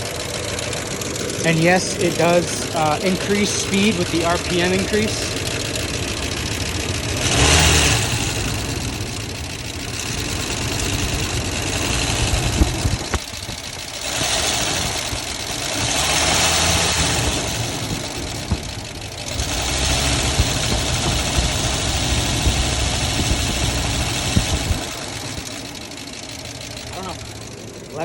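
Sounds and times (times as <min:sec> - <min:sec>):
engine knocking: 0:00.0 - 0:28.0
truck engine revving: 0:00.0 - 0:28.0.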